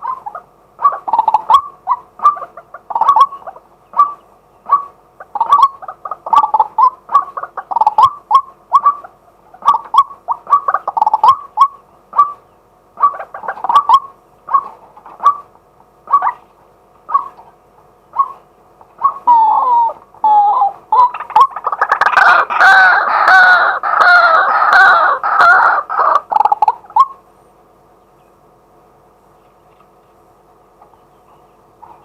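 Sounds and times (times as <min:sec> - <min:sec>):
waterhen calling: 0:00.0 - 0:27.3.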